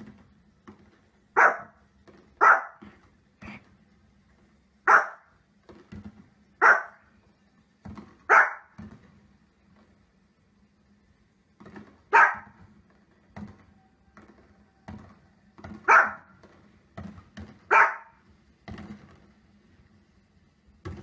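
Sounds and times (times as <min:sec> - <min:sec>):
dog barking: 0:01.4 - 0:01.8, 0:02.4 - 0:02.9, 0:04.8 - 0:05.3, 0:06.6 - 0:07.0, 0:08.3 - 0:08.8, 0:12.1 - 0:12.6, 0:15.8 - 0:16.3, 0:17.7 - 0:18.2.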